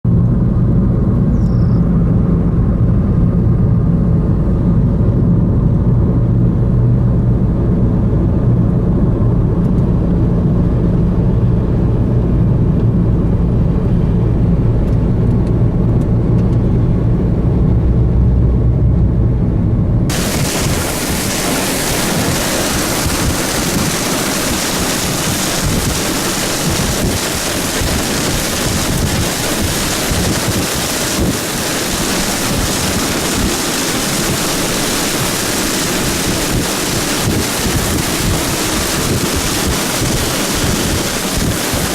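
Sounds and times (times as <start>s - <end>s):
vehicle droning: 0.1s - 25.0s
wind blowing on microphone: 14.2s - 41.9s.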